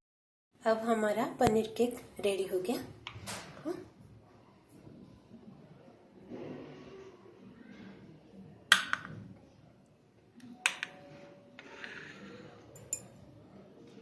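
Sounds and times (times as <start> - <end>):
dishware clinking: 12.8 - 13.2.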